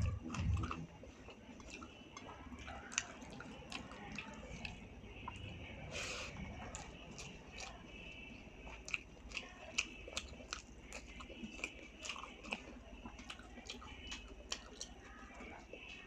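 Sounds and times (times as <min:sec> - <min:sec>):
wet mouth clicks: 0:00.0 - 0:02.4
chewing and biting food: 0:00.0 - 0:16.0.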